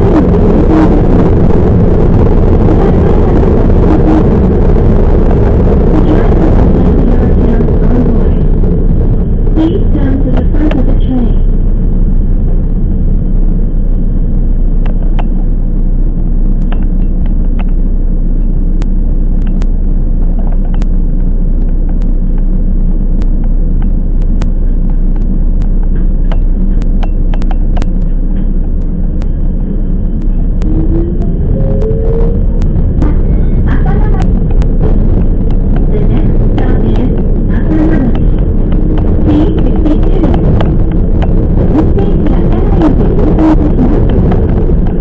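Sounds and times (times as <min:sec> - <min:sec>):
electric train rumbling on rails: 0:00.0 - 0:45.0
sharp clicks: 0:18.8 - 0:29.4
train motor whine rising: 0:28.1 - 0:45.0.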